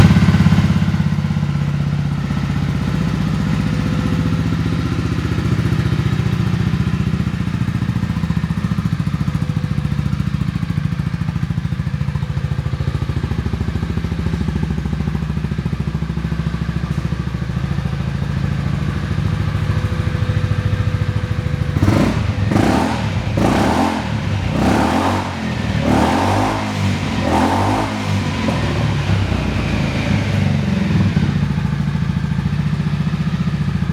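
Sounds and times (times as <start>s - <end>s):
scooter engine idling: 0.0s - 33.9s
engine revving: 18.6s - 32.1s.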